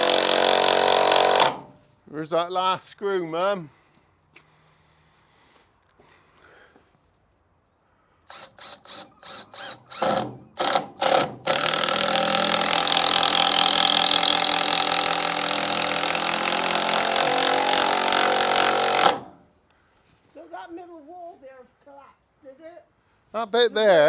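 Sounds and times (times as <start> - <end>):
power drill driving screw: 0.0 - 1.8, 8.3 - 19.4.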